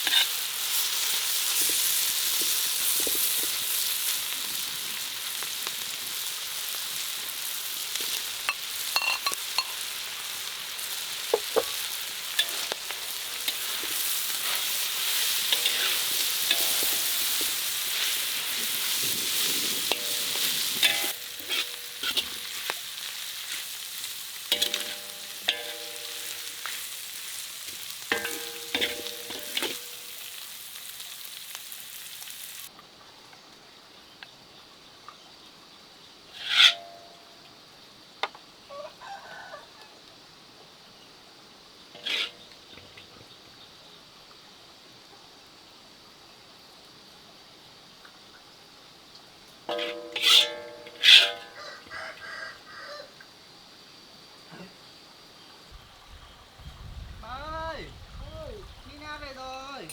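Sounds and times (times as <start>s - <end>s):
food sizzling in a pan: 0.0s - 32.7s, 36.3s - 37.3s, 38.6s - 43.0s, 49.3s - 57.8s.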